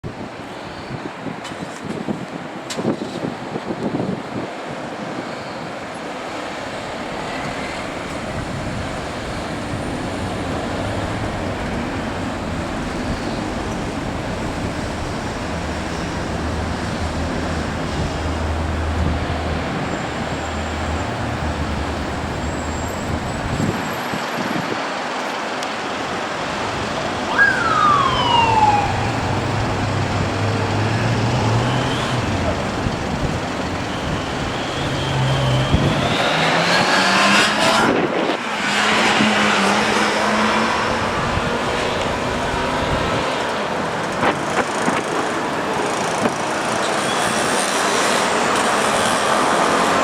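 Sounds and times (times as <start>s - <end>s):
wind and road noise: 0.0s - 50.0s
low engine hum: 6.4s - 23.8s, 26.1s - 36.1s
police siren wail: 26.1s - 36.9s.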